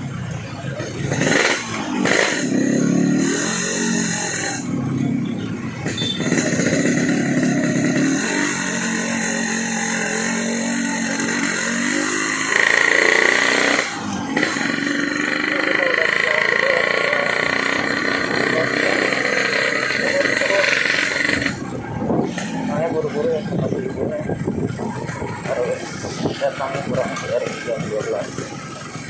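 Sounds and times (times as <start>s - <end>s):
motorcycle engine revving: 0.0s - 29.0s
wind noise: 21.6s - 22.5s, 23.5s - 27.1s.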